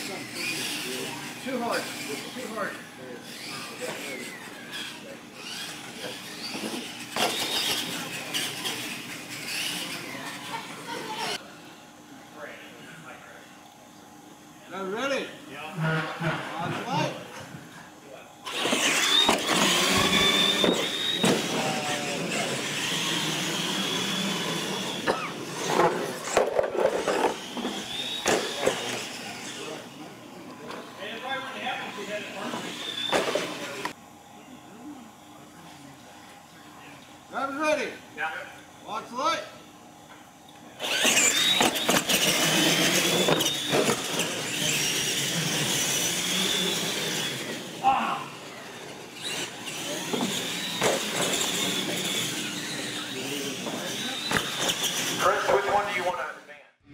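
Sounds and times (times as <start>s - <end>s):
electric motor and gear whine: 0.0s - 11.4s, 14.7s - 56.4s
toy trucks knocking and clattering: 24.8s - 29.1s, 40.8s - 47.6s.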